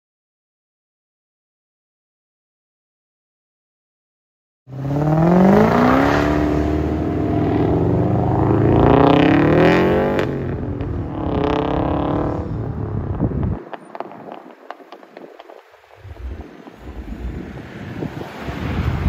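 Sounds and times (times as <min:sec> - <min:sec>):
car engine revving: 0:04.7 - 0:19.0
exhaust cracks: 0:05.8 - 0:19.0.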